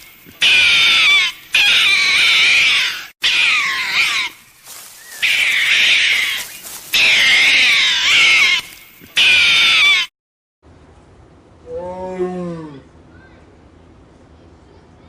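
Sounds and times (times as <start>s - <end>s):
animal high-pitched cries: 0.4s - 10.1s.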